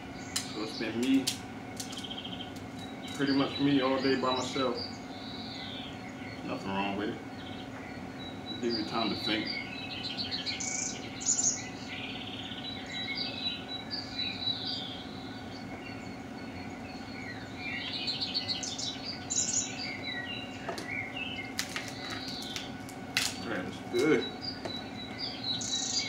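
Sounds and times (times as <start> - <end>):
low hum: 0.0 - 26.0
songbirds chirping and warbling: 0.0 - 26.0
sharp clicks: 0.3 - 3.3.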